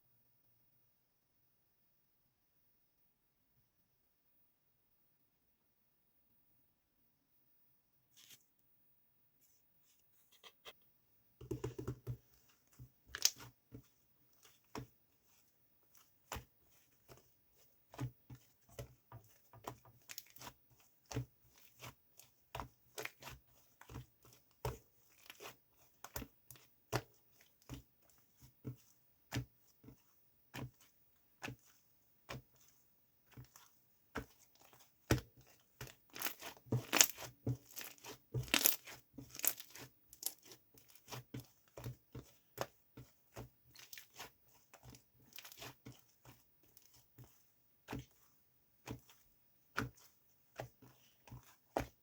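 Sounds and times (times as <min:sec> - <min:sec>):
slime clicking and popping: 0:13.2 - 0:13.4.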